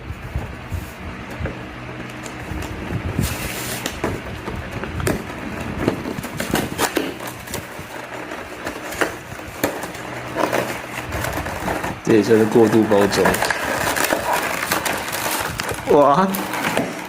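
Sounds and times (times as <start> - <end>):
packaging crinkling and tearing: 1.7 - 17.0.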